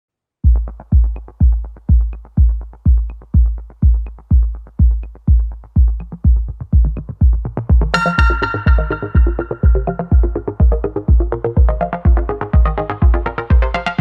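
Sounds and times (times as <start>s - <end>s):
electronic dance music: 0.5s - 14.0s
synth chords: 7.8s - 14.0s
cymbal crash: 8.0s - 10.4s.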